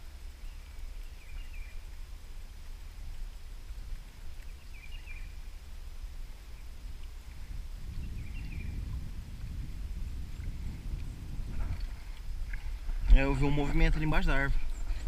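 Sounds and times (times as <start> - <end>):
low steady rumble: 0.0 - 15.0
bird warbling chirp: 4.6 - 5.3.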